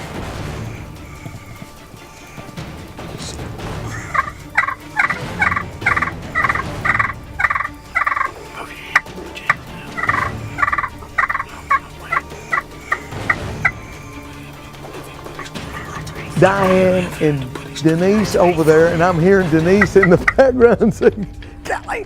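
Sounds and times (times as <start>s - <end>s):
turkey calling: 0.0s - 20.5s.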